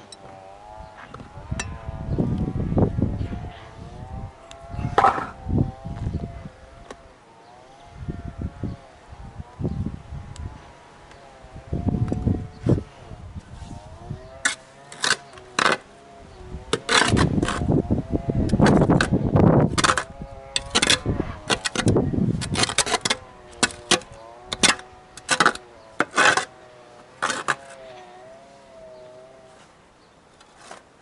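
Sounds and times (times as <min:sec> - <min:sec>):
hand tools striking masonry: 0:05.0 - 0:05.4, 0:16.7 - 0:17.6, 0:18.5 - 0:26.5, 0:27.2 - 0:27.8.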